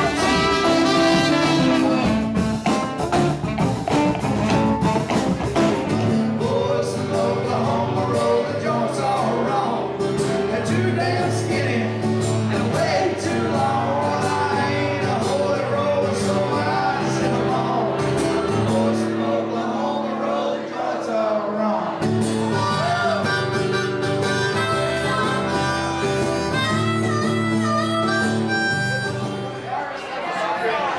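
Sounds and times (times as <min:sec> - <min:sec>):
live band music: 0:00.0 - 0:06.4, 0:22.1 - 0:29.7.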